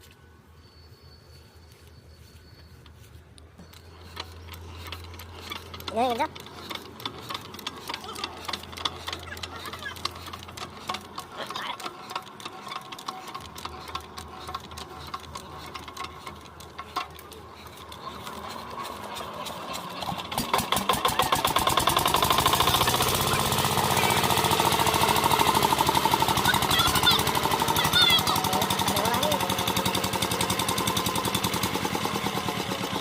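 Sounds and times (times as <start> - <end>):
water pump engine pounding: 3.9 - 33.0.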